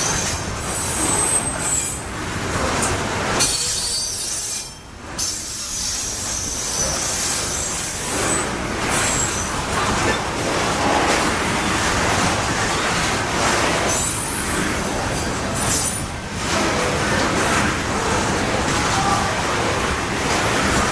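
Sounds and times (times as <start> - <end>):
high wheel squeals: 0.0 - 2.1, 3.4 - 10.2, 12.6 - 16.1
train wheels rumbling on rail: 0.0 - 20.9.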